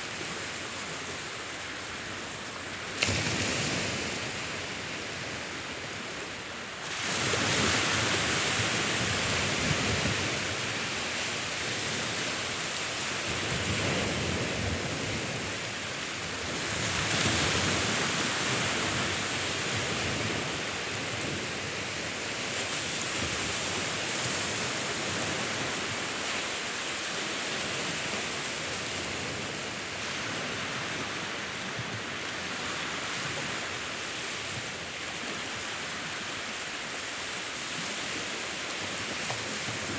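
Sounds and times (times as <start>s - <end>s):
sea waves on shore: 0.0s - 39.9s.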